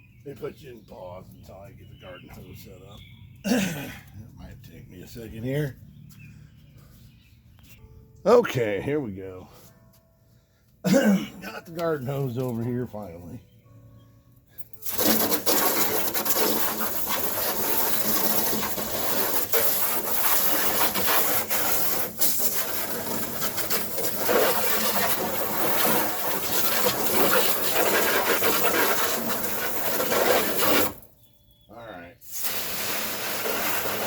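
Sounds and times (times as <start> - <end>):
scraping and rattling: 14.7 - 31.0
hose spraying water into plastic hull: 14.8 - 31.1, 32.2 - 34.0.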